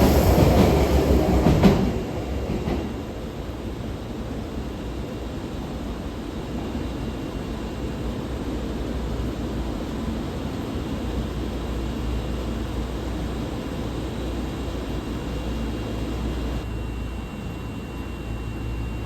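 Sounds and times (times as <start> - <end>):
subway platform rumbling hiss: 0.0 - 16.6
faint high whine: 10.8 - 19.0.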